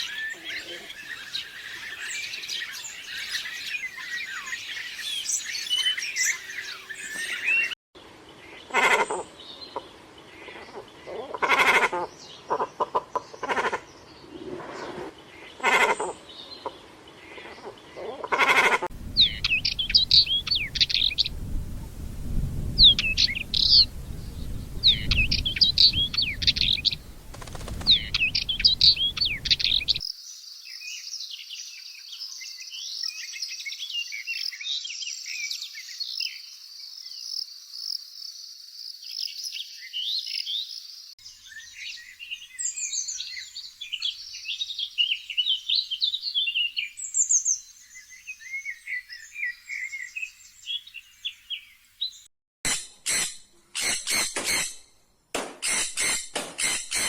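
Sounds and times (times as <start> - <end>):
chorus of twittering birds: 0.0 - 14.5, 19.0 - 21.5, 22.8 - 52.2
birds chirping: 0.0 - 18.3, 19.0 - 30.4.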